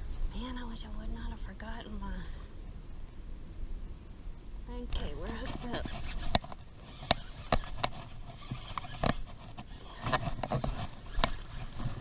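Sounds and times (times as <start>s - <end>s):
fishing gear clicking and knocking: 5.4s - 12.0s.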